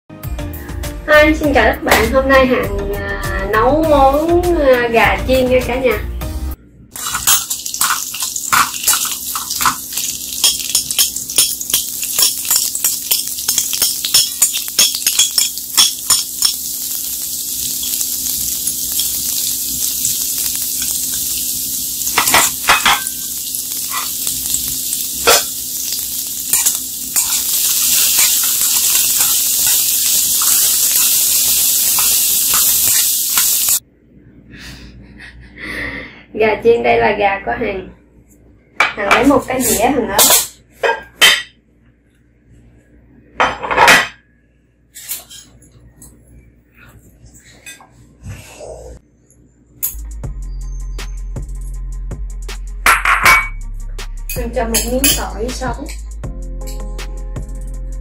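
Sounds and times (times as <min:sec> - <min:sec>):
metal spoon scraping wok: 0:07.0 - 0:21.4, 0:22.0 - 0:33.8
chicken frying in oil: 0:07.0 - 0:33.8.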